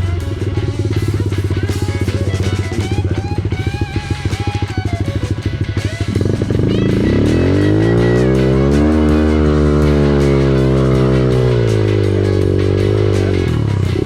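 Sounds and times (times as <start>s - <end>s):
background music: 0.0s - 14.0s
dirt bike engine chugging: 0.0s - 14.0s.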